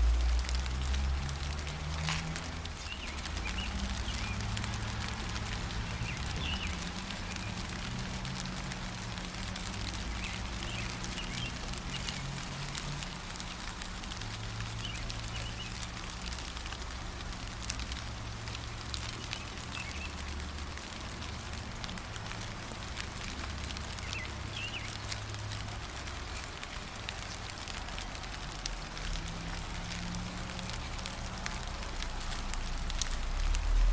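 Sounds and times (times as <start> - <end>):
gentle rain pattering: 0.0 - 33.9
birds chirping: 1.9 - 8.4, 9.9 - 12.5, 14.7 - 15.9, 18.7 - 20.4, 23.3 - 27.4.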